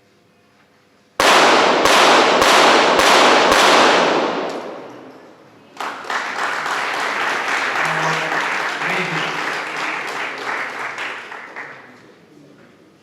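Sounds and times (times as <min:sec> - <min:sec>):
pistol shots echoing: 0:01.2 - 0:05.5
applause: 0:05.6 - 0:12.3.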